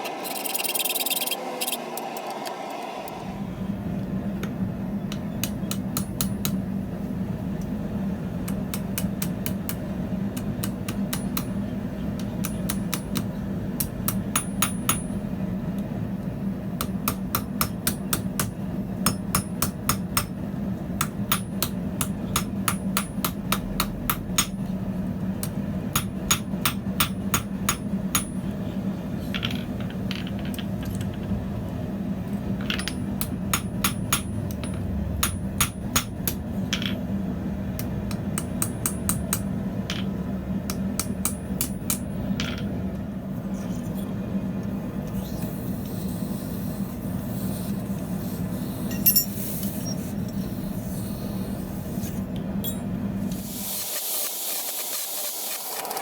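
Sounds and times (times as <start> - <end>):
steady low hum: 3.0 - 53.5
hammer striking steel on anvil: 10.6 - 11.6, 12.4 - 15.2, 16.8 - 20.4, 21.0 - 24.7, 25.5 - 28.4, 32.8 - 36.9, 37.8 - 40.1, 40.7 - 42.5.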